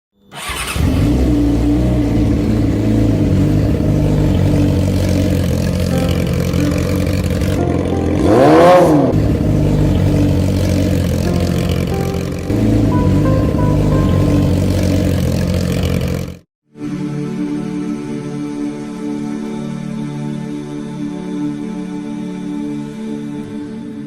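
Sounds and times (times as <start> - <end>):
motorcycle engine running: 0.4 - 16.4.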